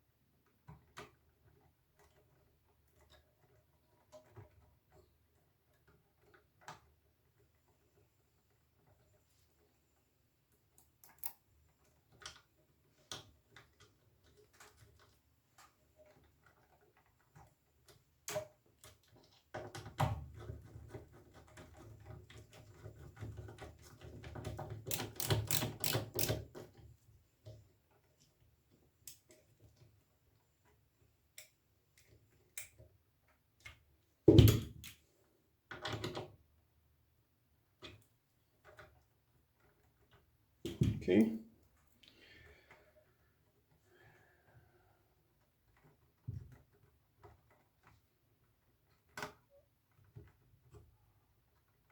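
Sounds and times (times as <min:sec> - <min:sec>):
hand tools and screws clicking: 0:24.3 - 0:26.8.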